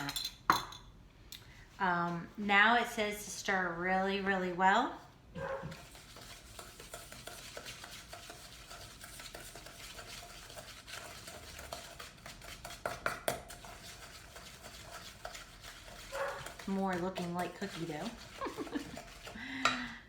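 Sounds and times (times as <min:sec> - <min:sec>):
spoon scraping a bowl: 0:05.4 - 0:19.9.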